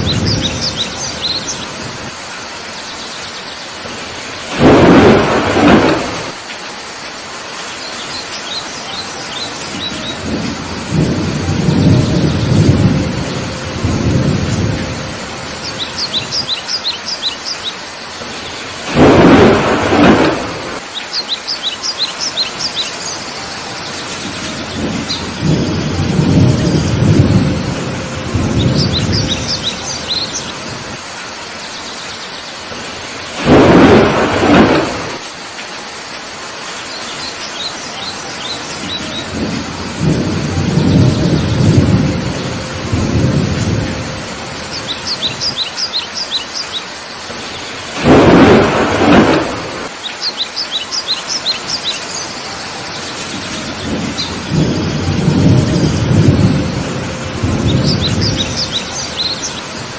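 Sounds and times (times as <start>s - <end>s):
loud thunderclaps: 0.0s - 2.2s, 3.8s - 6.4s, 9.6s - 16.6s, 18.8s - 20.8s, 24.0s - 31.0s, 32.7s - 35.3s, 38.7s - 45.6s, 47.3s - 50.0s, 52.9s - 59.4s
thunder rumbling: 0.0s - 2.2s, 3.8s - 6.5s, 9.1s - 16.8s, 18.2s - 21.0s, 22.3s - 31.1s, 32.7s - 35.4s, 38.2s - 45.6s, 47.2s - 50.0s, 52.4s - 59.9s
birds chirping: 0.0s - 6.7s, 7.4s - 10.4s, 15.5s - 27.0s, 28.4s - 36.0s, 36.6s - 42.4s, 44.5s - 56.7s, 57.6s - 59.9s
heavy rain falling: 0.0s - 59.9s.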